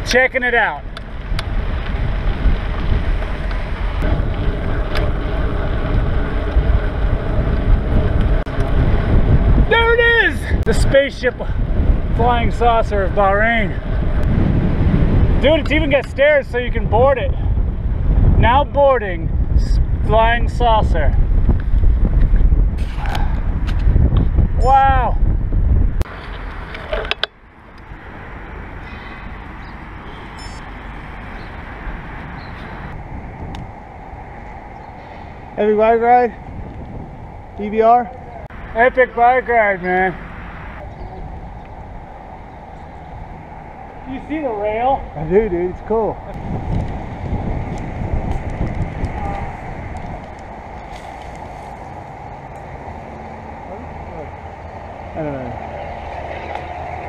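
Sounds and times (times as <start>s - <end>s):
wind buffeting microphone: 0.0s - 57.0s
sharp clicks and knocks: 26.2s - 27.4s
faint high beeps: 30.1s - 30.8s.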